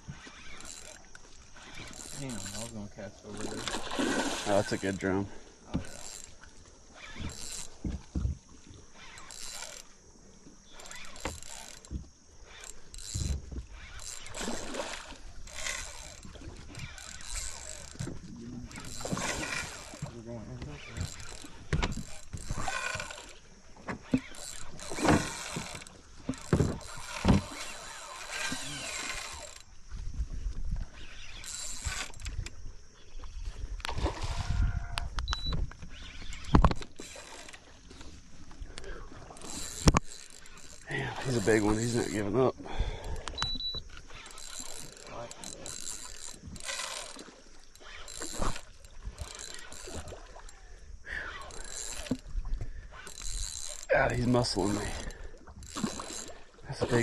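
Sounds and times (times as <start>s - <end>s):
water noise: 0.0s - 57.0s
knocks and thumps on boat: 5.7s - 6.1s, 7.1s - 8.4s, 11.2s - 12.1s, 13.0s - 13.8s, 17.8s - 23.0s, 23.8s - 27.5s
scattered clicks: 35.0s - 37.6s, 43.2s - 47.2s.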